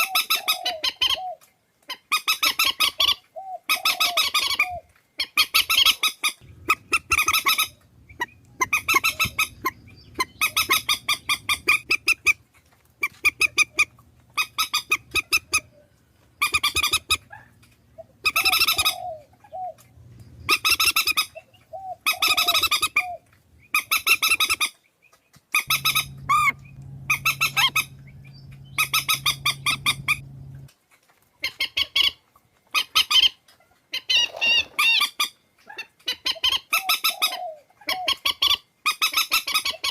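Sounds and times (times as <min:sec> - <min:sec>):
swamphen harsh squawks: 0:05.9 - 0:12.4, 0:13.0 - 0:15.7, 0:25.6 - 0:30.7.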